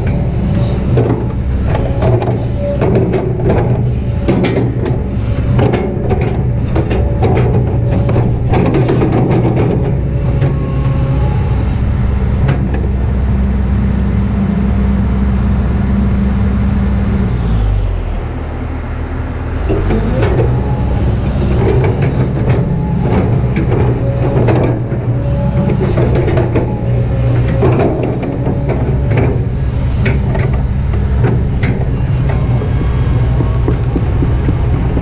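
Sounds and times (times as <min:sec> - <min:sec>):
excavator diesel engine running: 0:00.0 - 0:35.0
machine knocks: 0:31.2 - 0:35.0.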